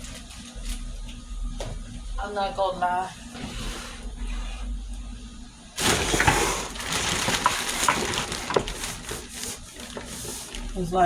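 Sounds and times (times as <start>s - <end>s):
kitchen items clattering: 5.8s - 11.0s.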